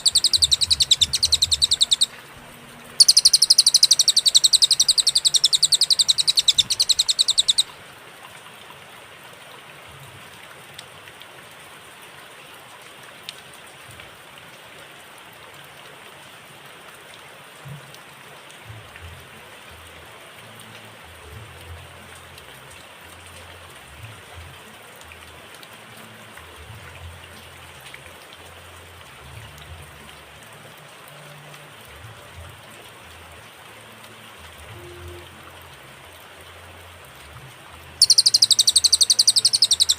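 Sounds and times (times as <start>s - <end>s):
songbird high-pitched trill: 0.0s - 2.1s, 3.0s - 7.7s, 38.0s - 39.9s
rain-like hiss: 0.0s - 39.9s.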